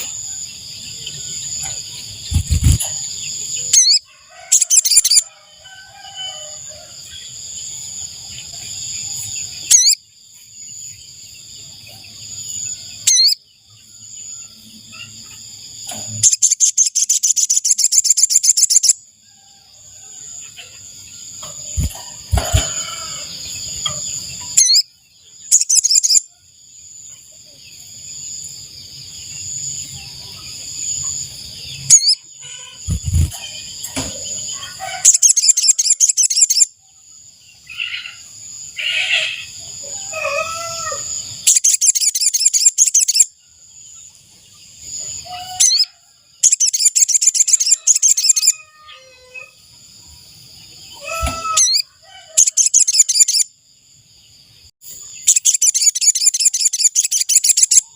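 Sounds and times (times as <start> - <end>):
high insect drone: 0.0 - 57.8
other birds calling: 1.1 - 5.3, 21.4 - 24.8, 31.8 - 36.7, 50.8 - 53.4
bird chattering trills: 2.2 - 5.2, 9.7 - 10.0, 16.2 - 19.0, 23.8 - 24.8, 31.8 - 33.6, 35.1 - 36.7, 41.4 - 43.3, 45.4 - 48.6, 55.2 - 57.9.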